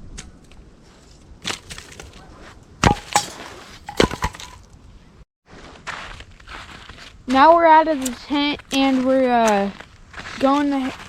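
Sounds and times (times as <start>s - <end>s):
hatchet chopping wood: 2.8s - 4.6s.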